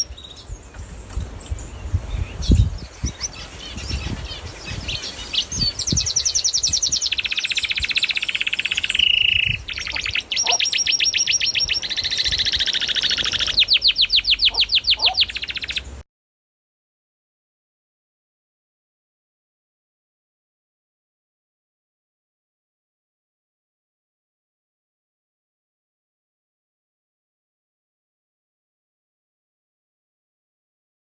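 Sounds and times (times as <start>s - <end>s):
cage birds chirping and trilling: 0.0s - 16.0s.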